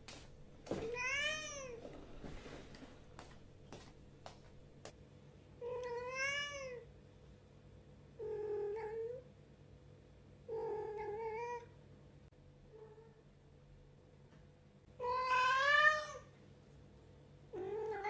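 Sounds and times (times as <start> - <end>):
cat meowing loudly: 15.0 - 16.3.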